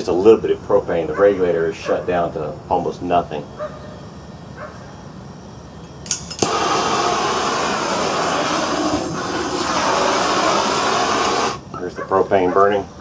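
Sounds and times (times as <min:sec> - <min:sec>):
burner and blower rushing: 0:06.0 - 0:13.0.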